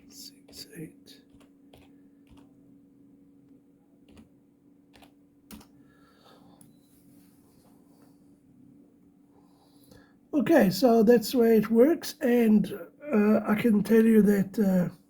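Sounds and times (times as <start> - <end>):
faint steady hum: 0.0 - 15.0
keyboard key presses: 1.2 - 2.6, 4.0 - 5.8.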